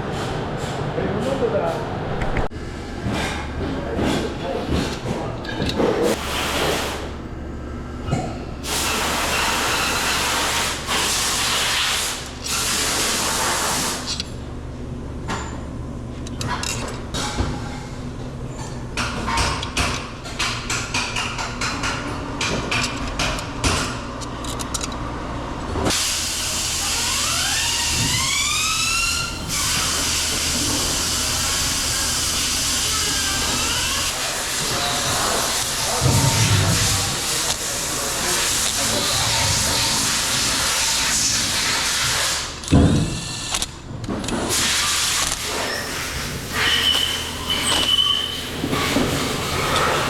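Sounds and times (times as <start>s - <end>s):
hiss of pressurized air spray: 8.7s - 14.1s, 25.9s - 27.1s, 44.5s - 45.3s
short rising squeal: 45.6s - 48.6s.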